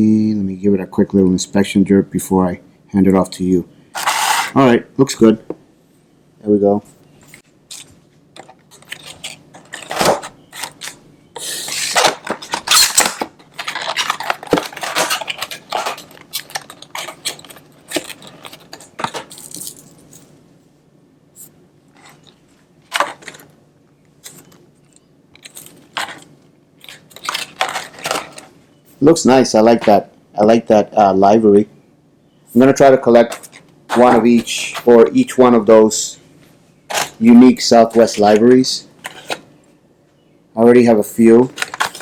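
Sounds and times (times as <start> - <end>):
packaging rustling: 4.0 - 4.6, 7.4 - 20.3, 21.9 - 23.6, 24.2 - 28.5, 36.9 - 39.5, 41.4 - 42.0.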